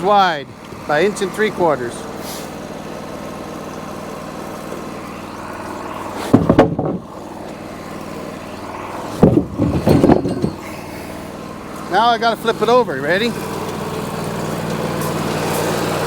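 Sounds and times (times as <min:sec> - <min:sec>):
sawmill engine idling: 0:00.0 - 0:16.0
loud clunks: 0:06.2 - 0:07.1, 0:09.1 - 0:11.0.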